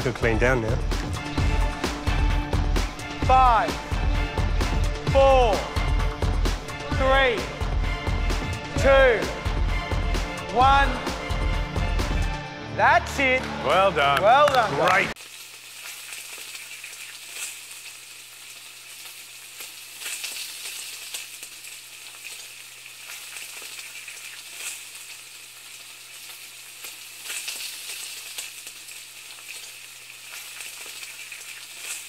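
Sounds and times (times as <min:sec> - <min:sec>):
food sizzling in a hot pan: 0:15.2 - 0:32.0.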